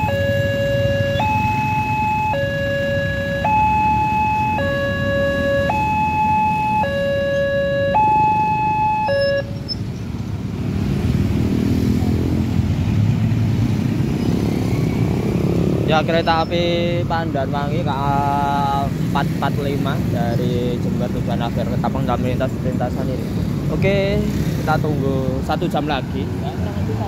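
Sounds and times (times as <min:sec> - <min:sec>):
level crossing two-tone alarm: 0:00.0 - 0:09.7
road traffic engines: 0:00.0 - 0:27.0.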